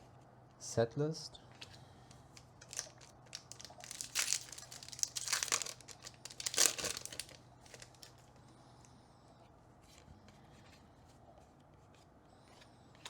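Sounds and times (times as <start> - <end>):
foil wrapper crinkling and tearing: 2.3 - 8.2.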